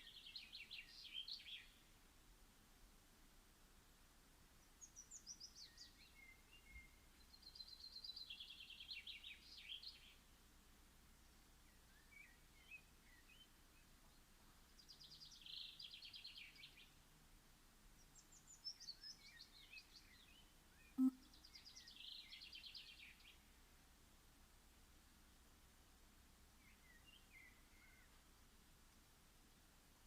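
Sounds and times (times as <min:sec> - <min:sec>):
bird chirps: 0:18.2 - 0:23.3
songbird trilling: 0:21.0 - 0:21.3.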